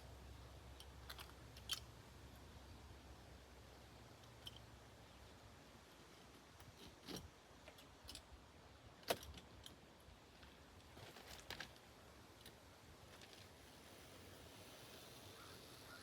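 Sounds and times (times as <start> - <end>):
hand tools clicking and scraping: 6.1 - 8.3.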